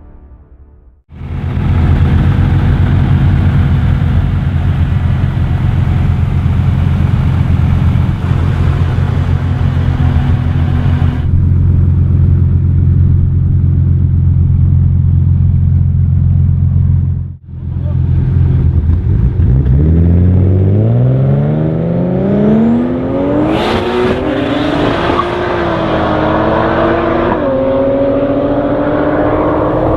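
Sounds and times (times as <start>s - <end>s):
car engine idling loudly: 1.1s - 19.1s.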